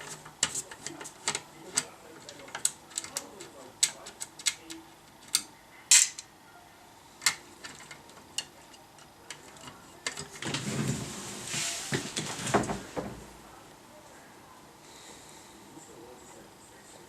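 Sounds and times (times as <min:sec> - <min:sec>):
rustling and scraping: 0:00.0 - 0:04.2, 0:07.3 - 0:13.3.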